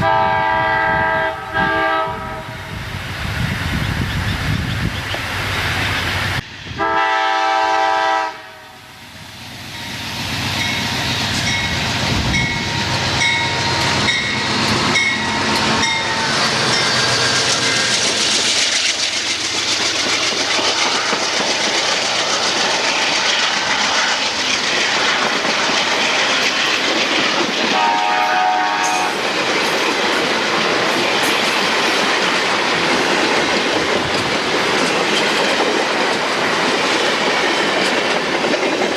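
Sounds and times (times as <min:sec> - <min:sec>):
train horn: 0:00.0 - 0:02.8, 0:06.8 - 0:09.0, 0:15.0 - 0:16.4, 0:27.7 - 0:29.2
train wheels clacking: 0:09.4 - 0:38.9.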